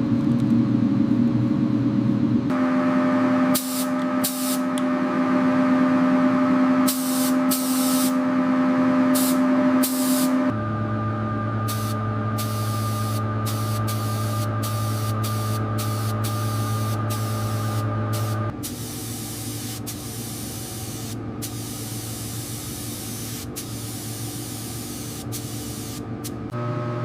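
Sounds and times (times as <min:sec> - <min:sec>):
machine humming low: 0:00.0 - 0:27.0
steady spraying hiss: 0:11.7 - 0:26.0.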